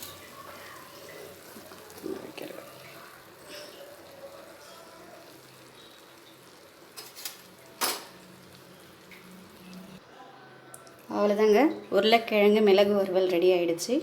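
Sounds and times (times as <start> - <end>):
metal utensils clinking on cookware: 0.0 - 5.0, 5.8 - 8.3.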